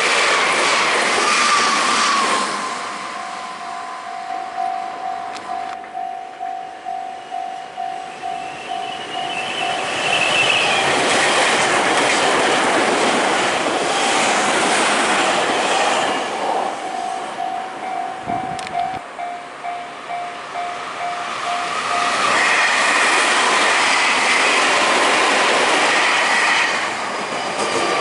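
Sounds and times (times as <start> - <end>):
train wheels rushing on rails: 0.0 - 28.0
level-crossing warning bell ringing: 2.5 - 11.4, 16.1 - 23.3.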